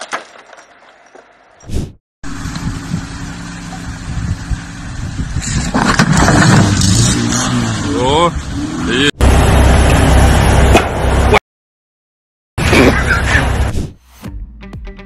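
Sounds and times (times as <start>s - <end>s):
car engine revving: 6.1s - 10.6s.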